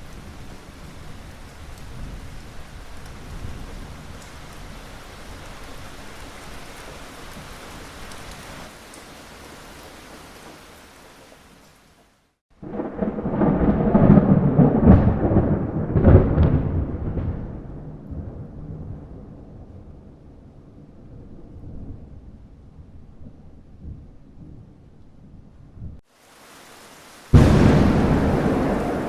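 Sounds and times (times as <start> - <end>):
rain hiss: 0.0 - 13.5, 26.0 - 29.0
rolling thunderclap: 12.6 - 20.0, 27.3 - 29.0.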